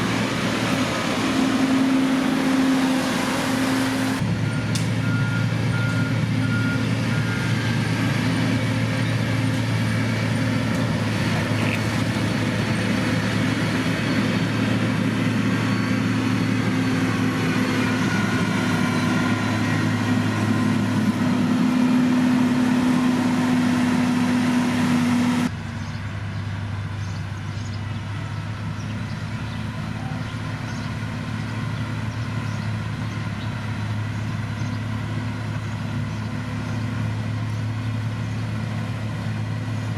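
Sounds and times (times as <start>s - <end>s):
diesel engines of heavy machinery: 0.0s - 39.9s
reversing alarm beeping: 4.4s - 8.0s, 13.9s - 20.8s.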